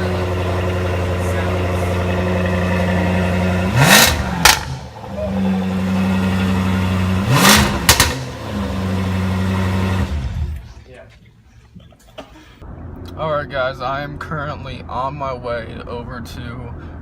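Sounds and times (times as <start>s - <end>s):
car engine idling and revving: 0.0s - 10.9s, 12.6s - 17.0s
exhaust cracks: 0.0s - 10.9s.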